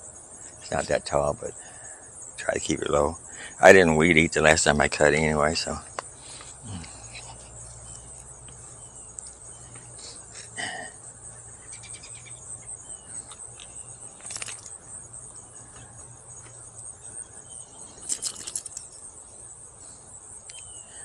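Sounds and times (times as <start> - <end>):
insects chorus: 0.0 - 21.0
rustles: 5.1 - 21.0
faint bird chirps: 6.2 - 21.0
brief clinks: 13.3 - 14.8, 18.0 - 19.0.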